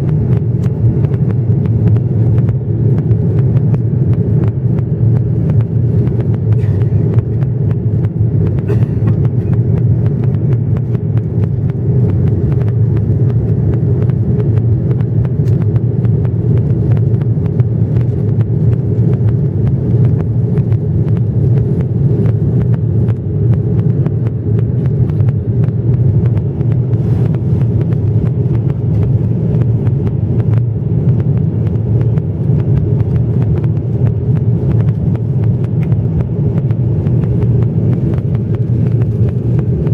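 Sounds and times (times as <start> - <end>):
jet engines rumbling in cabin: 0.0 - 39.9
rushing air: 20.8 - 29.6.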